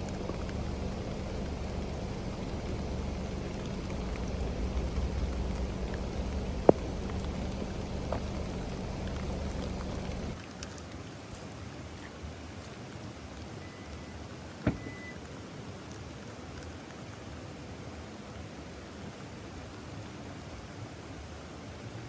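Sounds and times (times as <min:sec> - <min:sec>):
low rumble: 0:00.0 - 0:10.4
rain falling steadily: 0:00.0 - 0:22.0.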